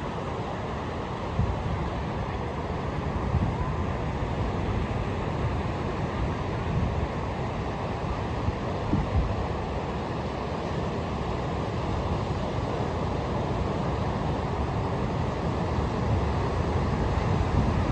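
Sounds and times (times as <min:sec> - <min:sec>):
wind buffeting microphone: 0:16.0 - 0:17.9.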